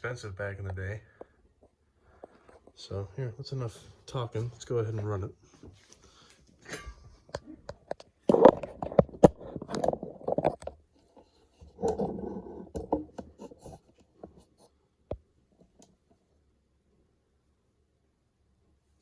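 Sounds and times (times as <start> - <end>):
handling clicks and rustling: 4.4 - 14.5.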